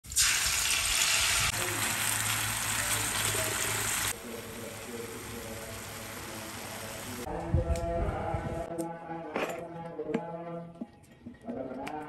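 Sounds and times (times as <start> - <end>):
oil sizzling in a wok: 0.0 - 7.3.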